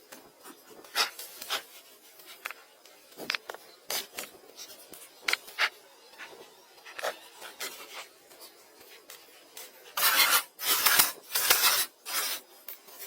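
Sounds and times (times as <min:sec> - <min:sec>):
hand tool scraping wood: 0:10.0 - 0:12.4
loud rasping strokes: 0:10.0 - 0:12.4.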